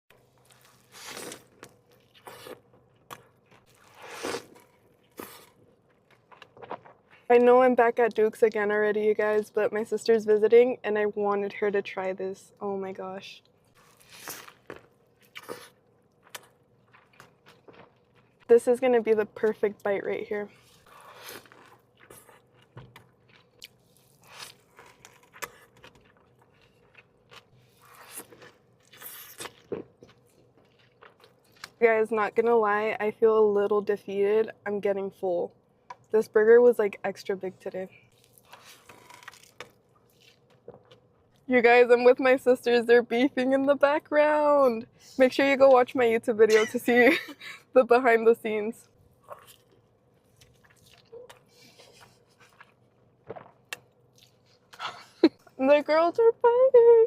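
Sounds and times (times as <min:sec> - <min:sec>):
person chewing crunchy food: 0:00.2 - 0:07.3, 0:13.7 - 0:18.5, 0:20.5 - 0:31.8, 0:38.1 - 0:41.4, 0:49.1 - 0:55.1.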